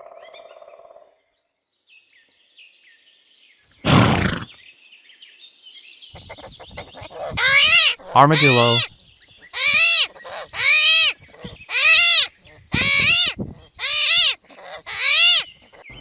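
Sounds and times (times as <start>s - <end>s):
pony high call: 3.8s - 4.5s, 6.2s - 8.9s, 9.6s - 16.0s
pony snorting: 3.8s - 4.5s, 6.2s - 8.9s, 9.7s - 16.0s
small birds chirping: 3.8s - 4.6s, 5.8s - 16.0s.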